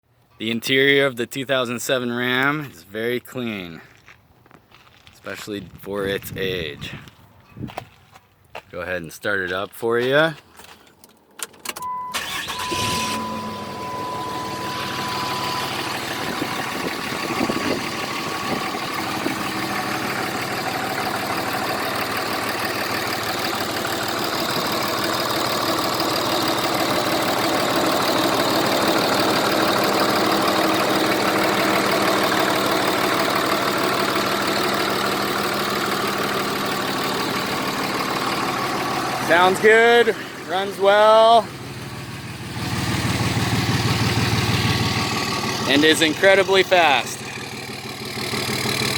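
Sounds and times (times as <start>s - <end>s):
pickup engine starting and idling: 10.5s - 48.9s
steady high tone: 11.8s - 22.2s.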